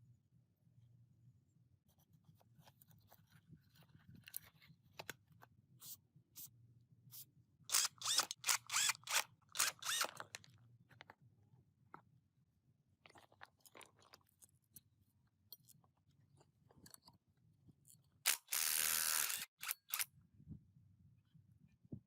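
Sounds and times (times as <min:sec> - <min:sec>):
light clicks and scrapes: 0:02.3 - 0:05.2.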